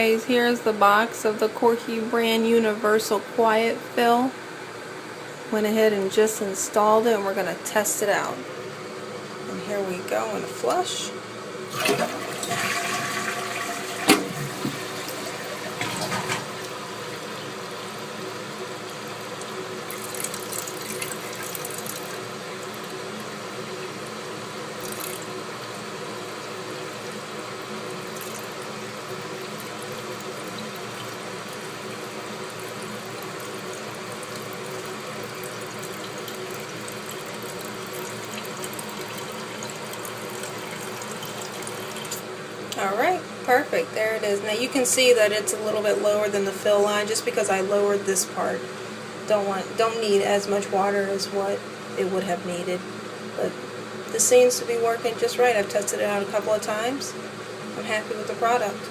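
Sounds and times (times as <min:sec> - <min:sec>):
toilet flushing: 0:09.7 - 0:42.9
toilet tank refilling hiss: 0:11.7 - 0:42.3.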